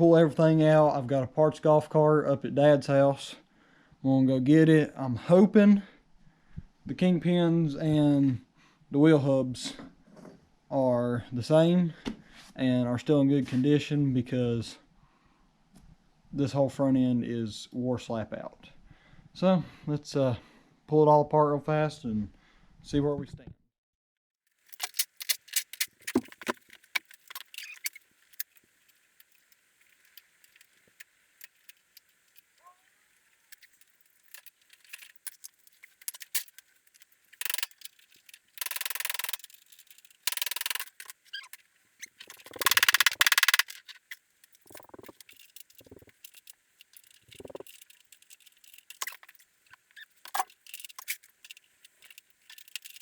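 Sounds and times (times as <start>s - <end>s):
metal tools clinking: 33.5s - 53.0s.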